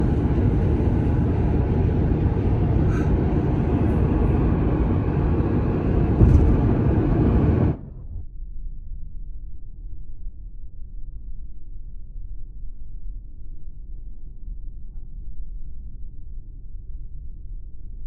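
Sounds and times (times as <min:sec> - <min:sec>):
car road and wind noise: 0:00.0 - 0:08.2.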